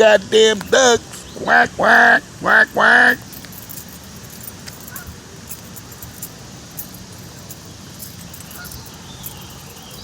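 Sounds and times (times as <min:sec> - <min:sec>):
ducks calling: 0:00.0 - 0:03.4, 0:08.4 - 0:09.6.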